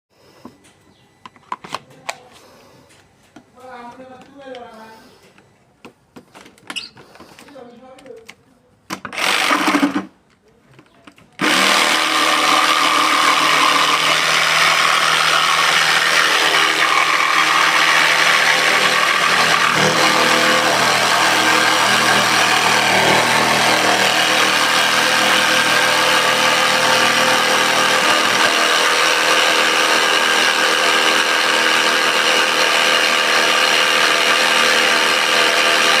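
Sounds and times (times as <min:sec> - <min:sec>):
jigsaw cutting wood: 0:09.1 - 0:10.1, 0:11.4 - 0:36.0.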